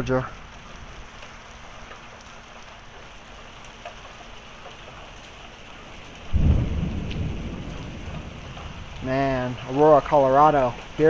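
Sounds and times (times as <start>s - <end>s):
heavy rain with hail: 0.0s - 11.0s
deep rumble of thunder: 6.2s - 11.0s.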